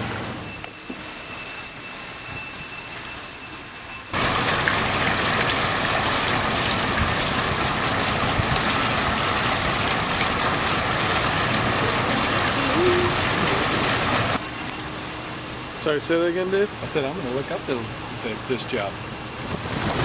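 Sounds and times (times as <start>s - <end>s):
thin high tones: 0.2s - 4.6s, 10.6s - 20.0s.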